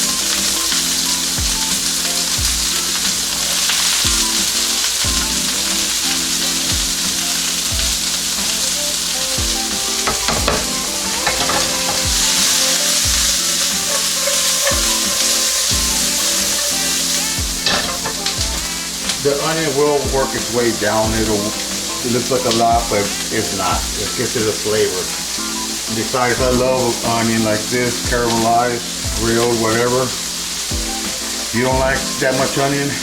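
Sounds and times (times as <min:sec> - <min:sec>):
onions sizzling in oil: 0:00.0 - 0:33.0
utensil stirring clatters: 0:00.1 - 0:25.3.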